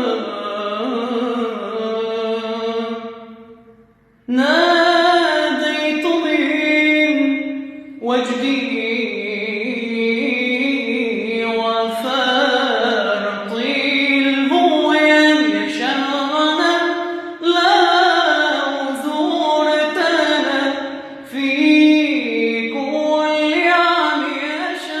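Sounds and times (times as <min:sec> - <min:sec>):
man chanting: 0:00.0 - 0:03.2, 0:04.3 - 0:25.0.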